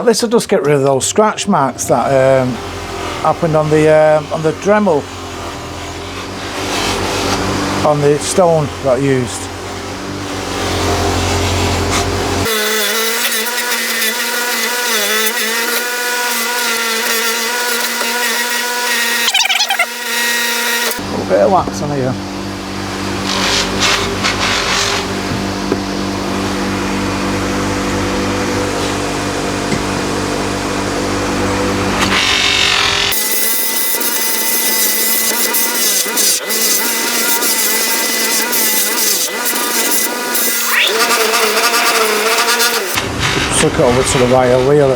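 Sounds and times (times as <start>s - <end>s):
wire wheel buffing steel: 1.8s - 21.0s, 32.1s - 44.9s
metal scrubbing on polishing wheel: 23.2s - 25.0s, 33.5s - 44.9s.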